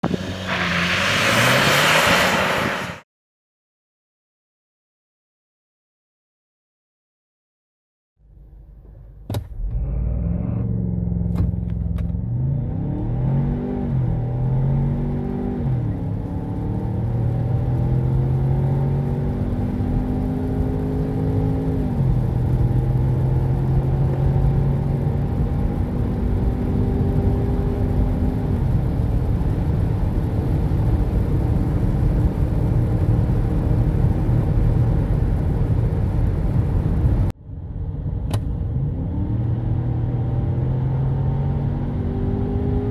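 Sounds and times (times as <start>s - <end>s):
car engine accelerating hard: 0.0s - 3.0s, 9.5s - 37.3s, 38.0s - 42.9s
engine and road rumble: 0.0s - 3.0s, 8.2s - 42.9s
gear upshifts: 0.0s - 3.0s.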